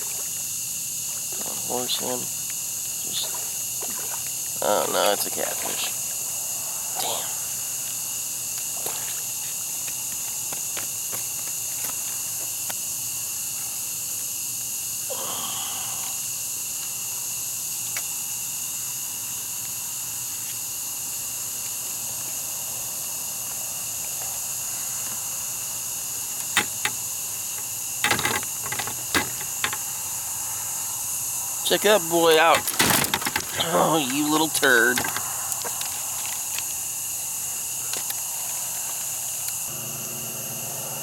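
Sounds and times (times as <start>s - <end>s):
crickets chirping: 0.0s - 41.0s
sharp clicks and knocks: 27.6s - 29.9s, 32.3s - 33.6s, 34.3s - 36.8s.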